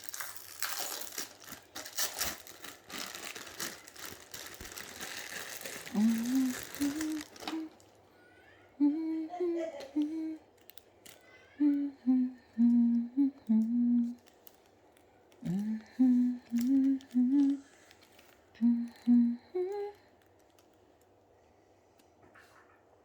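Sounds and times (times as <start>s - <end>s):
person humming: 5.6s - 7.8s, 8.8s - 10.5s, 11.5s - 14.3s, 15.4s - 17.7s, 18.6s - 20.1s.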